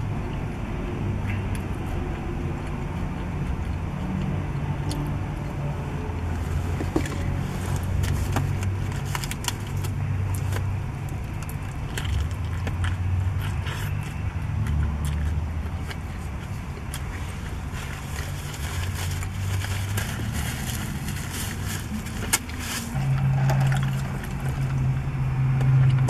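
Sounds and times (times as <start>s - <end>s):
low hum from car: 0.0s - 26.0s
person chewing food: 1.5s - 21.2s
foil wrap crinkling: 16.5s - 24.9s.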